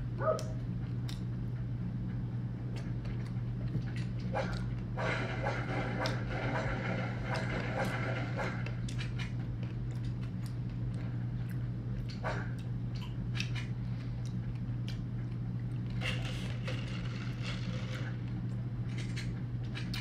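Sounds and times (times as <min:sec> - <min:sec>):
low steady hum: 0:00.0 - 0:20.0
person chewing food: 0:09.6 - 0:15.9.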